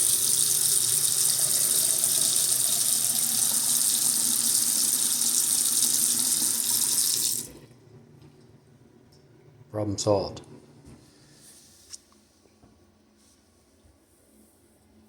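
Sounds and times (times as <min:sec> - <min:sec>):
faucet running into sink: 0:00.0 - 0:07.7.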